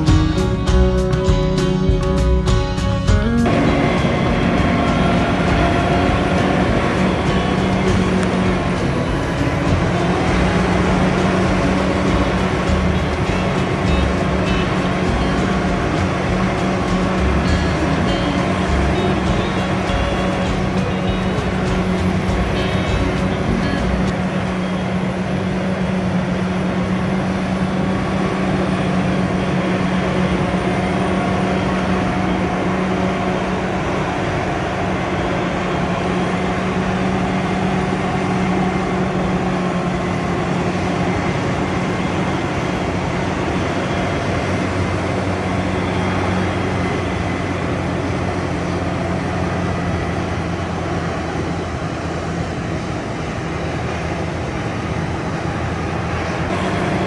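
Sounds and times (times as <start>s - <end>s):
low engine hum: 0.0s - 57.0s
tractor diesel engine droning: 0.0s - 57.0s.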